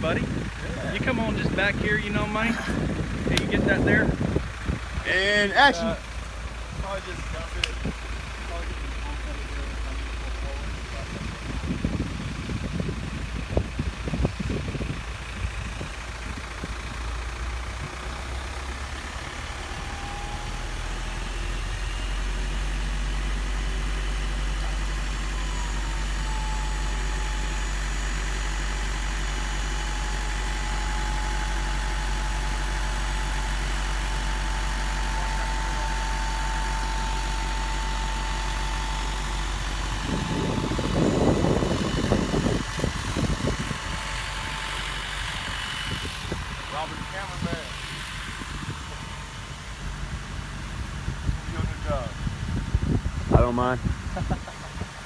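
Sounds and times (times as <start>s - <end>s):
truck engine idling: 0.0s - 55.0s
hydraulic whine: 14.9s - 54.9s.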